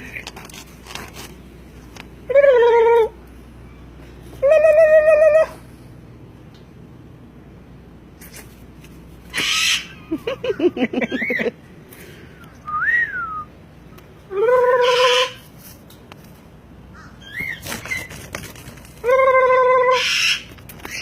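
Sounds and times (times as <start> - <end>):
parrot harsh squawk: 9.3 - 10.0, 14.5 - 15.4, 19.1 - 21.0
parrot held call: 9.3 - 10.1, 14.3 - 15.4, 19.0 - 21.0
parrot rising and falling whistle: 12.6 - 13.5.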